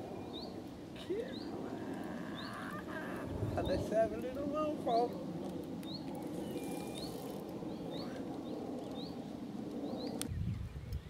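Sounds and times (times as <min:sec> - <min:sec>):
small bird chirping: 0:00.2 - 0:03.8, 0:05.8 - 0:09.2.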